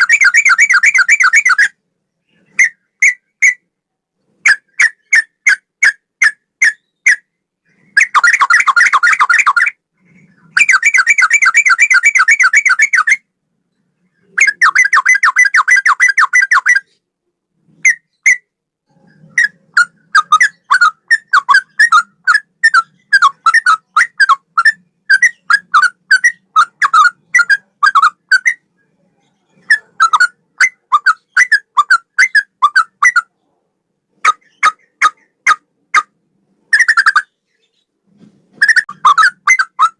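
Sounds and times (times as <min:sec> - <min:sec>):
bird singing whistled notes: 0:00.0 - 0:03.7, 0:04.5 - 0:09.8, 0:10.4 - 0:13.3, 0:14.1 - 0:17.0, 0:17.8 - 0:18.5, 0:19.2 - 0:28.6, 0:38.6 - 0:39.9.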